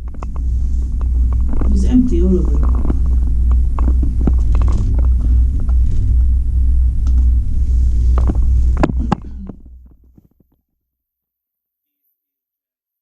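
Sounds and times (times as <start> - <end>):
cable car cabin rumbling: 0.0 - 10.1.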